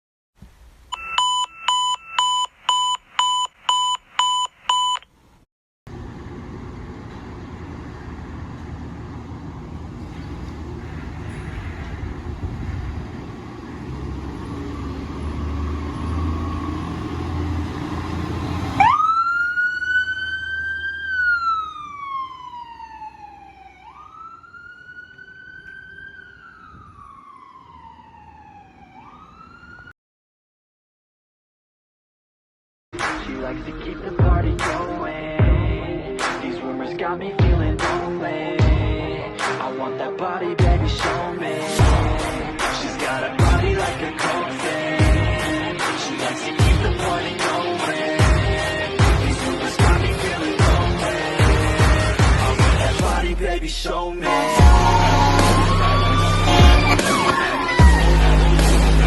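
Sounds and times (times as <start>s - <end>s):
sharp electronic beeps: 1.0s - 5.0s, 55.6s - 58.1s
fire engine motor running: 5.9s - 27.6s, 54.6s - 59.0s
siren wailing: 18.7s - 29.9s, 54.2s - 59.0s.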